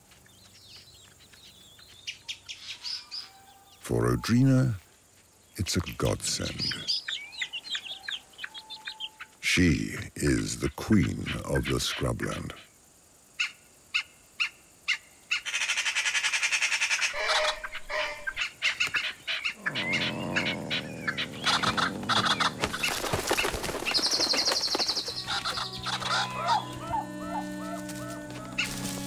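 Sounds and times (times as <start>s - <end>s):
bird chirps and calls: 6.0s - 9.4s, 13.4s - 23.0s, 23.9s - 28.7s
bird rattling chatter: 21.1s - 26.2s
soft music with held notes: 25.3s - 29.0s.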